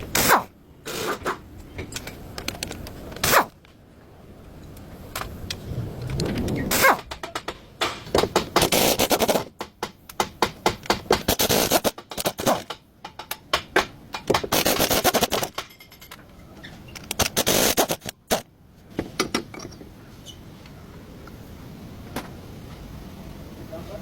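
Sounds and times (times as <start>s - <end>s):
tool clicks and knocks on metal: 9.4s - 16.2s.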